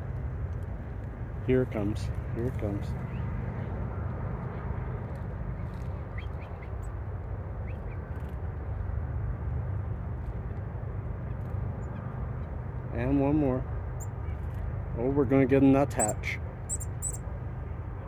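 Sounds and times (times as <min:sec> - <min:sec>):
low outdoor rumble: 0:00.0 - 0:18.0
faint bird chirps: 0:16.0 - 0:17.2.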